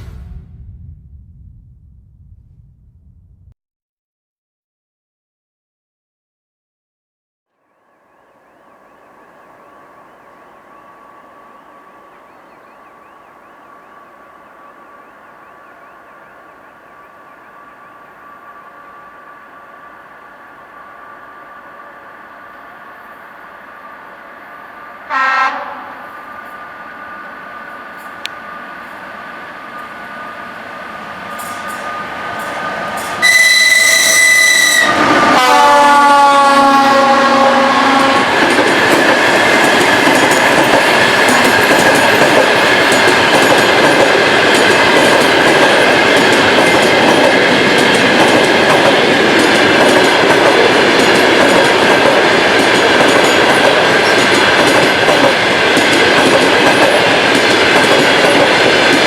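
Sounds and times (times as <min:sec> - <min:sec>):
electric locomotive approaching: 0:07.6 - 0:59.0
high steady train whistle: 0:07.7 - 0:38.6
train horn chord: 0:25.0 - 0:26.6, 0:33.2 - 0:38.4
train wheels clattering on rails: 0:31.1 - 0:34.0, 0:38.0 - 0:59.0.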